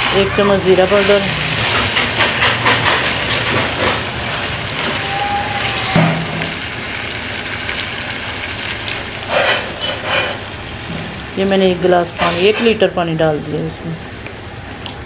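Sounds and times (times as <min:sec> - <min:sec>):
meat sizzling in a wok: 0:00.0 - 0:14.8
spatula scraping a pan: 0:09.3 - 0:10.4.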